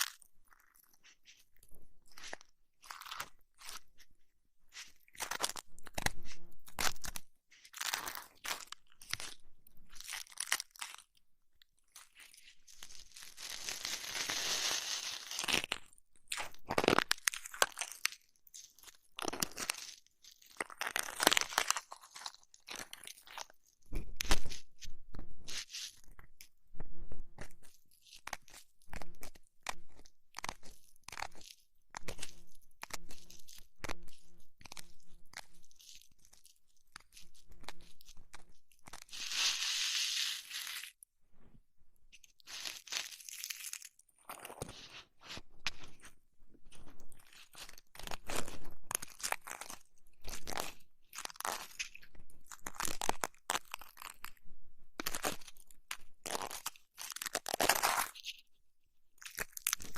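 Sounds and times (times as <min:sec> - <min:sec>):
rubbing and scratching on microphone: 0:00.0 - 0:10.1, 0:12.0 - 0:15.4, 0:23.2 - 0:43.1, 0:44.2 - 0:52.8.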